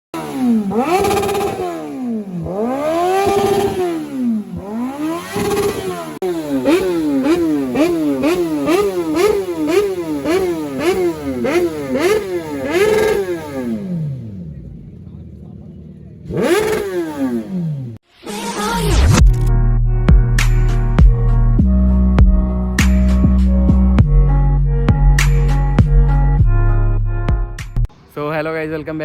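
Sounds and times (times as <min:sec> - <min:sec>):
motorcycle engine revving: 0:00.2 - 0:18.1.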